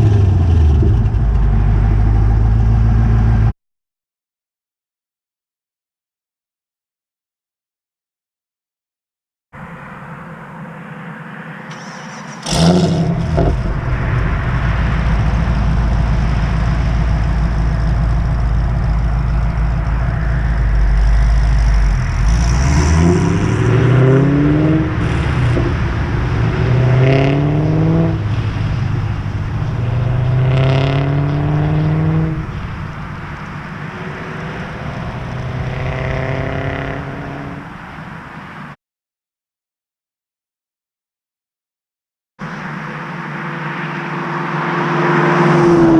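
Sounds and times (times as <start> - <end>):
car engine idling and accelerating: 0.0 - 3.5, 9.6 - 38.8, 42.4 - 45.9.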